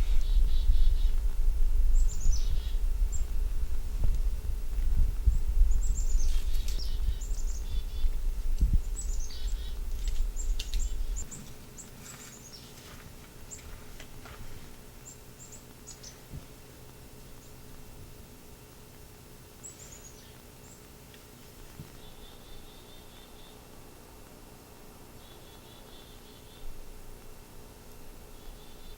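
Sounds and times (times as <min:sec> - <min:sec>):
chickadees chirping: 0:00.0 - 0:01.3, 0:01.9 - 0:03.4, 0:05.3 - 0:14.2, 0:14.8 - 0:16.3, 0:19.5 - 0:21.0, 0:21.6 - 0:23.8, 0:25.1 - 0:26.8, 0:28.2 - 0:28.9
low rumble: 0:00.0 - 0:11.8.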